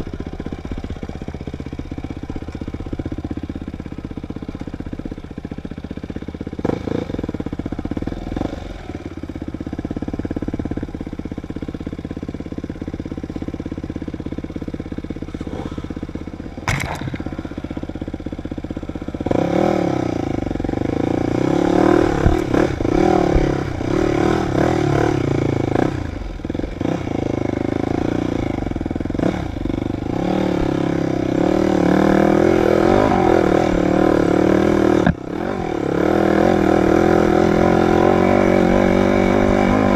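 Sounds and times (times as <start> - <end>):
dirt bike engine revving: 14.6 - 39.9.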